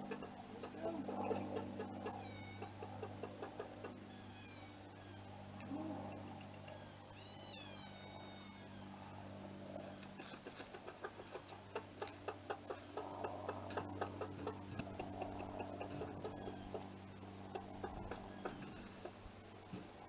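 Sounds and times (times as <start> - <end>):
chickens clucking: 0.0 - 4.2, 9.7 - 19.8
steady low hum: 0.0 - 20.0.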